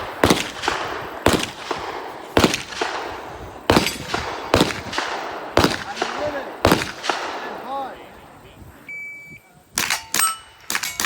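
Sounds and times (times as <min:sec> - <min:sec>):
rifle shots: 0:00.0 - 0:08.2, 0:09.8 - 0:11.0
bullet hitting steel target: 0:09.8 - 0:11.0.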